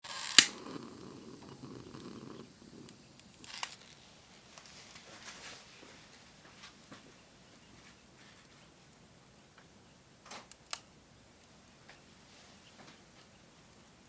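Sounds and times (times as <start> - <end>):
fire crackling and popping: 0.0 - 7.6, 9.4 - 12.2
fluttering rumble of flame: 0.4 - 3.7.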